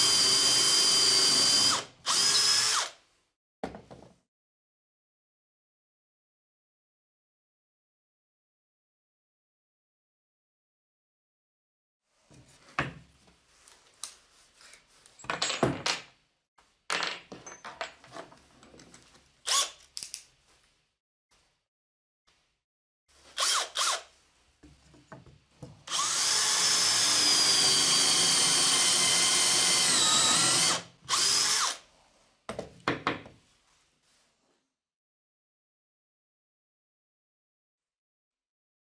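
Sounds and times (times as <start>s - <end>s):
electric drill running: 0.0s - 2.9s, 23.4s - 24.0s, 25.9s - 31.8s.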